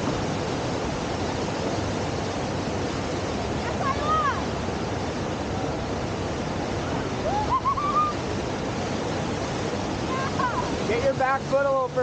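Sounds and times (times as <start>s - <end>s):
river water rushing: 0.0s - 12.0s
wavering high calls: 7.2s - 8.2s.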